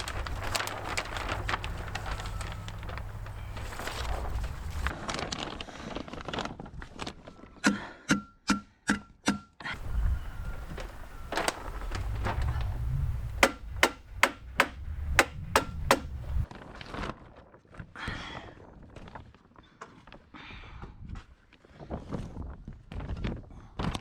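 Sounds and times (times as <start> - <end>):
wind buffeting microphone: 9.8 - 16.4
staples driven into plastic: 13.3 - 16.4.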